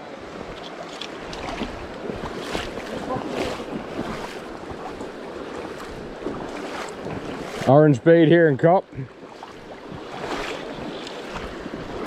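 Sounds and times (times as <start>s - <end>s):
stream water rushing: 0.0s - 12.0s
wind on microphone: 0.2s - 7.7s.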